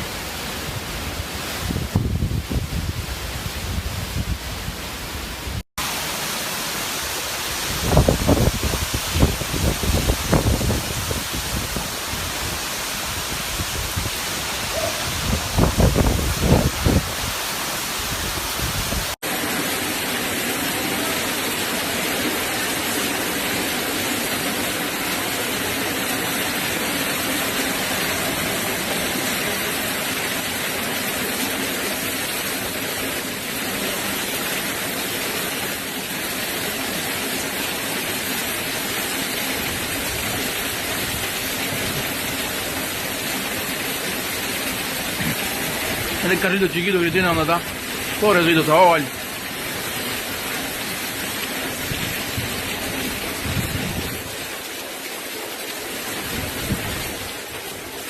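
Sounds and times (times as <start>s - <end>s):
heavy rain downpour: 0.0s - 58.0s
wind gusts buffeting microphone: 1.6s - 4.8s, 7.7s - 17.4s, 51.8s - 54.4s, 56.2s - 57.4s.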